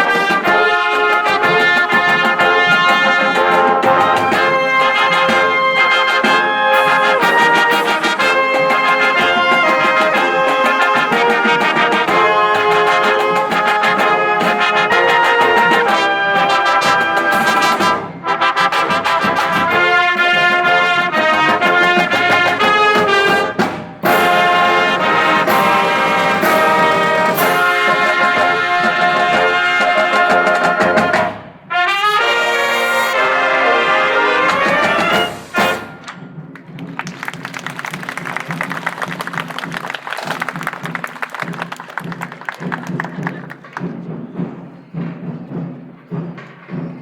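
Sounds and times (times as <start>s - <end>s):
marching band playing: 0.0s - 47.0s.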